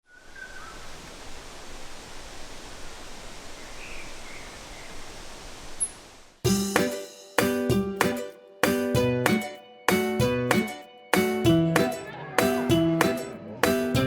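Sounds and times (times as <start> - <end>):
faint bird chirps: 0.0 - 1.0, 3.5 - 5.1
steady outdoor hiss: 0.1 - 7.3
plucked and keyboard music: 6.4 - 14.0.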